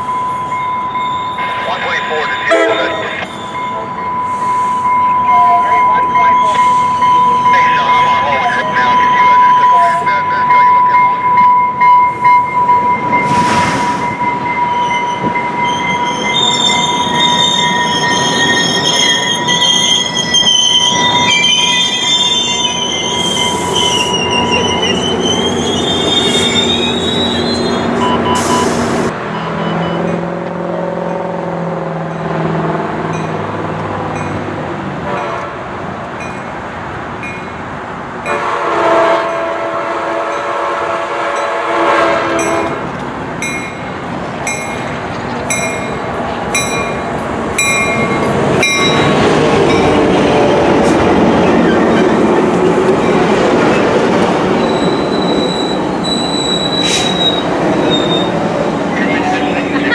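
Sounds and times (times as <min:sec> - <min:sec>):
train wheels squealing: 0:00.0 - 0:08.1, 0:12.0 - 0:30.2, 0:47.6 - 0:53.8, 0:54.5 - 0:59.9
train passing drone: 0:00.0 - 0:59.9
multi-note train horn: 0:02.5 - 0:03.2, 0:38.3 - 0:42.8.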